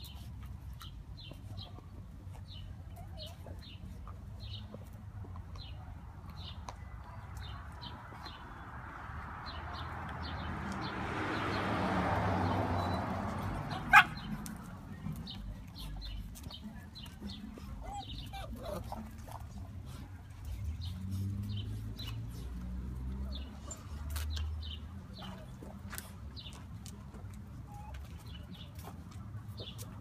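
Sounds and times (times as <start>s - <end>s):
small birds chirping: 0.0s - 8.8s, 12.4s - 27.0s.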